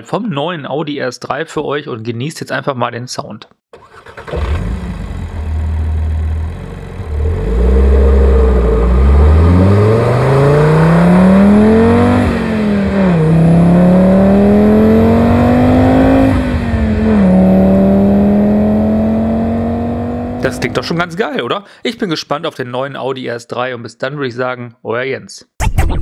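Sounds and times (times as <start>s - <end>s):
car engine accelerating: 3.8s - 21.0s
engine note dropping at upshift: 4.3s - 21.0s.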